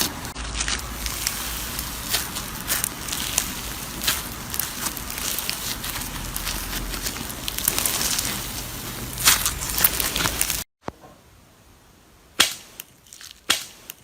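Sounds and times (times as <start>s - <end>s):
slime crackling and popping: 0.0s - 10.7s.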